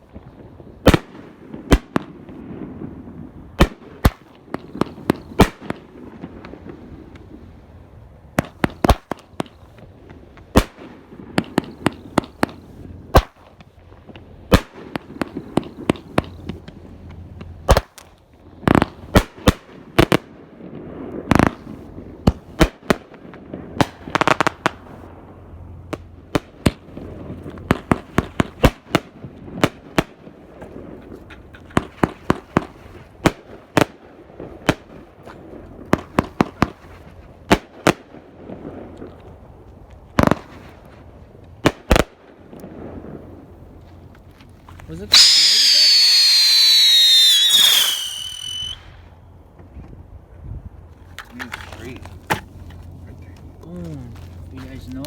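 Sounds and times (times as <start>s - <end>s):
rapid firework pops: 0.0s - 2.4s, 3.6s - 7.4s, 8.4s - 20.3s, 21.1s - 25.0s, 25.9s - 43.2s
fireworks bangs: 18.6s - 39.5s, 44.8s - 49.1s.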